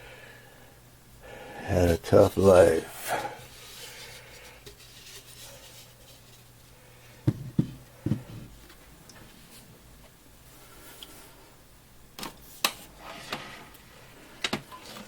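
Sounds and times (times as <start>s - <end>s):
faint steady hum: 0.0s - 15.0s
clay pot knocking: 7.2s - 8.5s.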